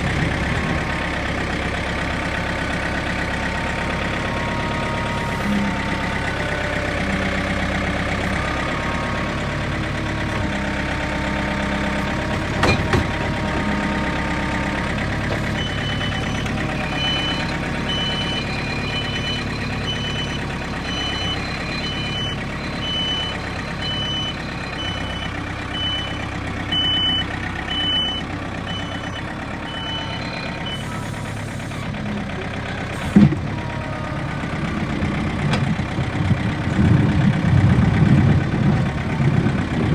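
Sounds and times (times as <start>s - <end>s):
diesel engine running: 0.0s - 39.9s
reversing alarm beeping: 3.8s - 31.8s.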